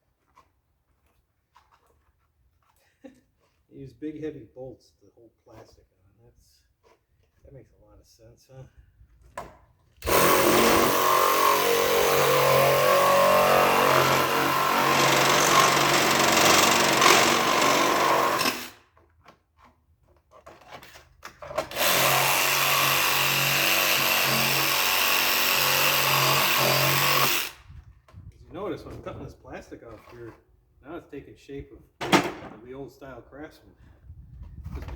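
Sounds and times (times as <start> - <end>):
power tool cutting plastic: 10.0 - 18.8, 21.6 - 27.6.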